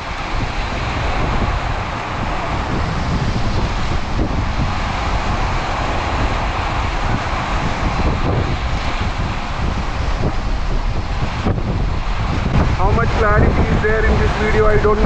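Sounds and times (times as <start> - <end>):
heavy rain pouring: 0.0 - 15.0
low rumble: 0.0 - 15.0.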